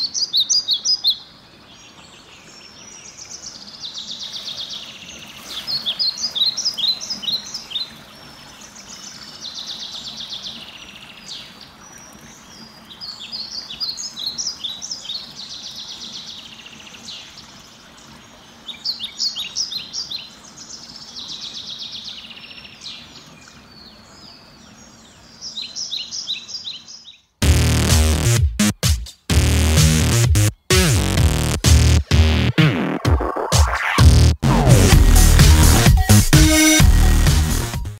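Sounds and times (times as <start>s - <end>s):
songbirds chirping and trilling: 0.0s - 27.4s
faint outdoor background: 0.0s - 37.9s
loud beat-driven music: 27.4s - 37.9s.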